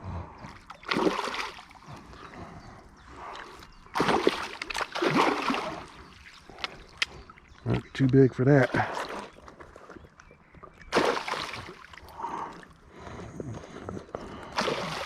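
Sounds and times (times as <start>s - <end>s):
fish thrashing in water: 0.5s - 2.0s, 3.4s - 7.0s, 8.6s - 12.8s, 14.4s - 15.0s.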